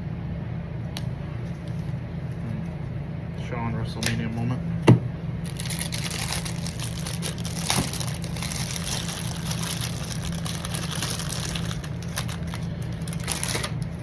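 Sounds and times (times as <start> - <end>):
low machine hum with hiss: 0.0 - 14.0
trading cards rustling in sleeves: 5.4 - 14.0.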